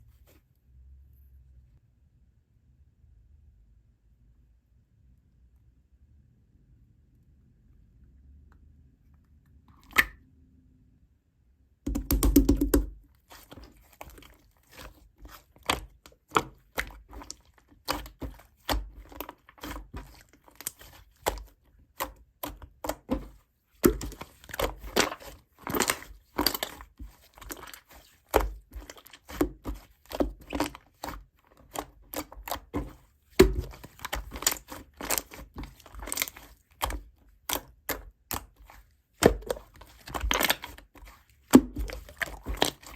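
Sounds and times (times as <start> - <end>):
crisp clicks and crinkles: 13.2 - 42.9.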